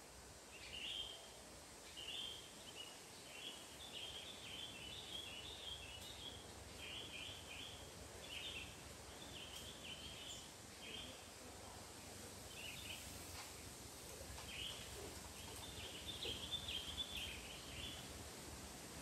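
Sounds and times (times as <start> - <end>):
bird chirping: 0.5 - 11.2, 14.4 - 18.1.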